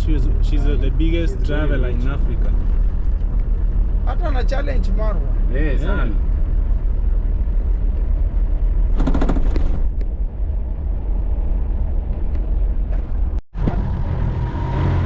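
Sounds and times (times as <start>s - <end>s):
engine and road rumble: 0.0s - 15.0s
short rapid rattle: 8.9s - 9.9s.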